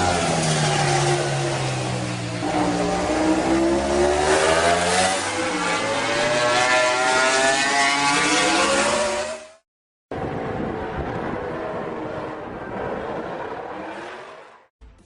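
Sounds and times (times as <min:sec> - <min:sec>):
racing motorcycle engine revving: 0:00.0 - 0:09.6.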